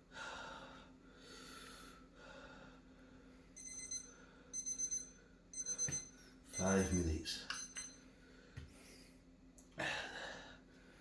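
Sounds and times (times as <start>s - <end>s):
timer alarm beeping: 3.6s - 8.0s.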